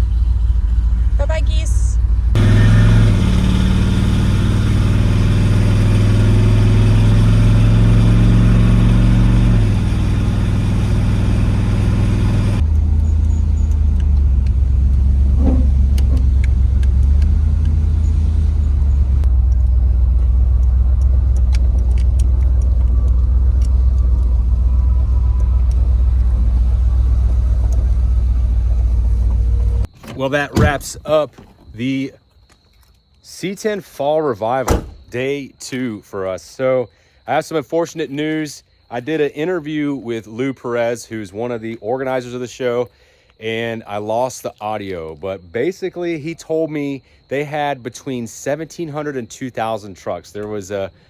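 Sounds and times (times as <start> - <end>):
vehicle engine droning: 0.0 - 31.9, 34.6 - 35.1.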